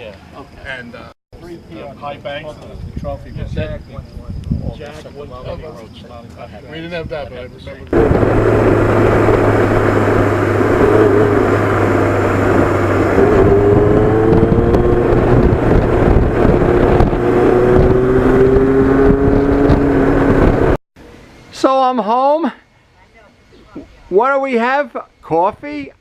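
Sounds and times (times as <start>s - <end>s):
wind rush on microphone: 2.7s - 5.7s, 7.0s - 20.8s
motorcycle engine running: 8.0s - 20.8s.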